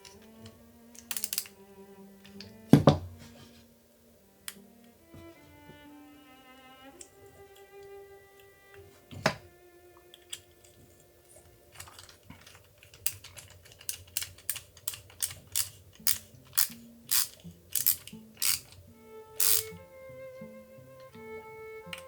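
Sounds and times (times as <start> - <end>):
sharp clicks of metal parts: 0.0 - 1.6, 10.1 - 18.8, 19.4 - 19.7
faint background music: 0.0 - 22.0.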